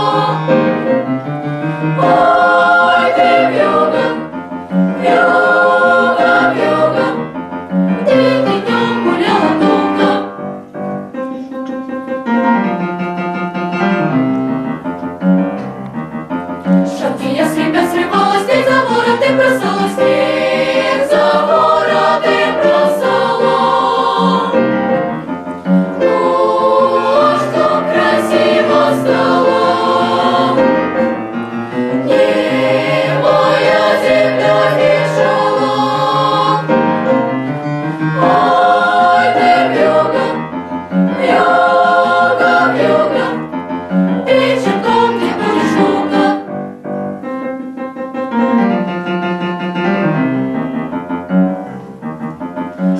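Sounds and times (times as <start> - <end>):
children's choir singing: 0.0 - 10.6, 16.9 - 46.6
piano accompaniment: 0.0 - 52.9.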